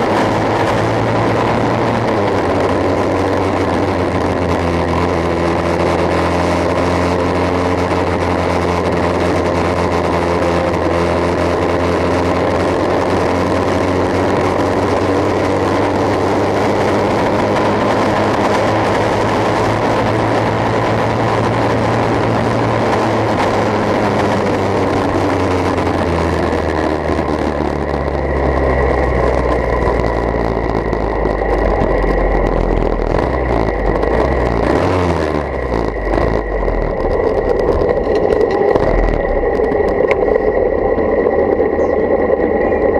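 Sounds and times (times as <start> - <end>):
engine droning through exhaust pipe: 0.0 - 42.9.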